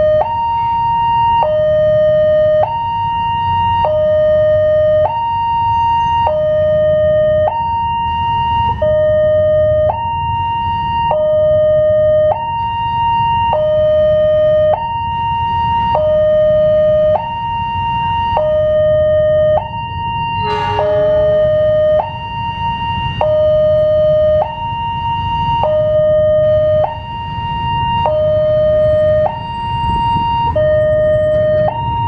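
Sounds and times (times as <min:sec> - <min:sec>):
level crossing two-tone alarm: 0:00.0 - 0:32.0
low rumble: 0:20.4 - 0:22.6.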